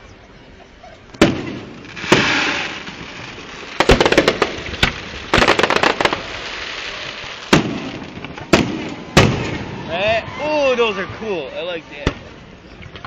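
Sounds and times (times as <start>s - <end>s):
fireworks crackling: 0.5s - 13.0s
fireworks banging: 1.0s - 13.0s
firework hiss: 1.1s - 12.6s.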